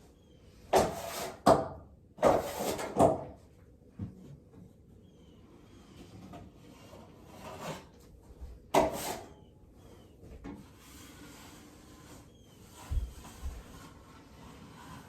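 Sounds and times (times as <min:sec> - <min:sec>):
drywall tool scraping wall: 0:00.7 - 0:03.4, 0:06.0 - 0:08.1, 0:08.7 - 0:09.5, 0:10.5 - 0:15.0.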